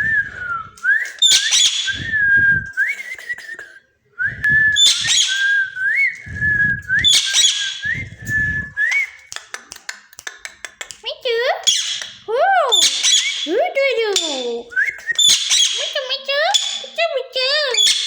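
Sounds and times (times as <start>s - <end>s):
parrot whistling: 0.0s - 3.6s, 4.2s - 9.3s, 11.6s - 13.5s, 14.2s - 17.0s
parrot screeching: 1.2s - 1.9s, 4.8s - 5.5s, 7.1s - 7.8s, 11.6s - 13.5s, 15.2s - 17.0s, 17.6s - 18.0s
low muffled bursts: 1.9s - 2.8s, 4.1s - 4.8s, 5.7s - 7.1s, 7.8s - 8.8s.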